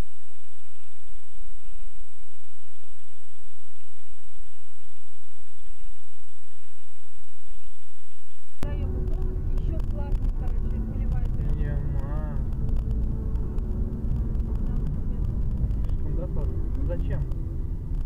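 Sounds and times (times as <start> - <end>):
crackling low hum: 0.0 - 18.0
electronic static hiss: 0.0 - 18.0
high-pitched whine: 0.0 - 18.0.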